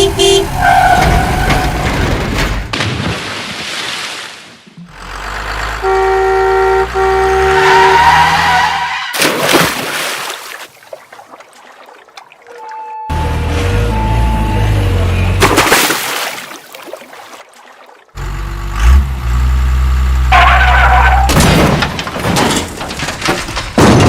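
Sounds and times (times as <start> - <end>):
vehicle horn blasts: 0.0 - 0.6, 5.8 - 8.9.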